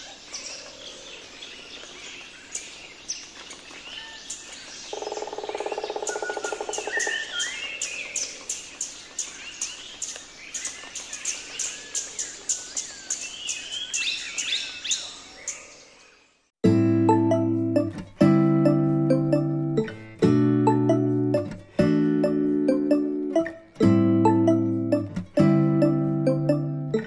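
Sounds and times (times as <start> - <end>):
birds chirping and warbling: 0.0 - 16.4.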